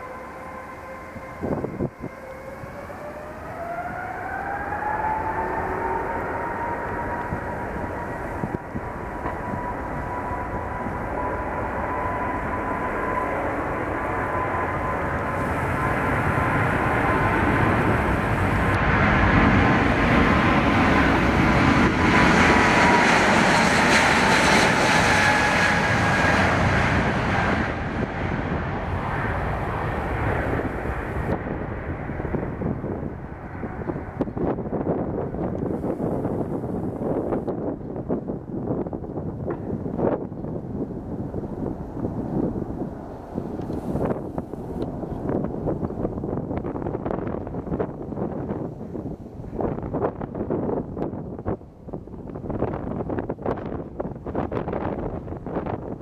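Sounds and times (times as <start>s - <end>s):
jet engines whining: 0.0s - 56.0s
jet roar passing: 0.0s - 56.0s.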